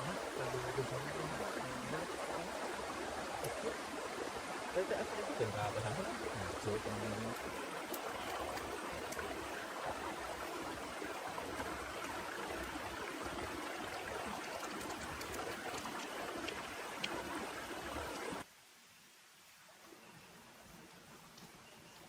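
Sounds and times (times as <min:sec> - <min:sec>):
sharp drip ticks: 0:13.8 - 0:17.4.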